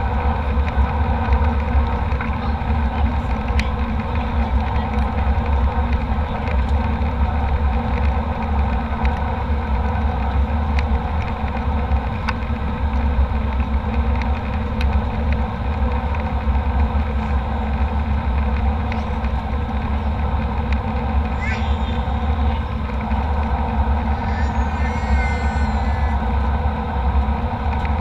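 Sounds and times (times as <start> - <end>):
jet cabin engine rumble: 0.0 - 28.0
faint clicks: 3.5 - 3.8.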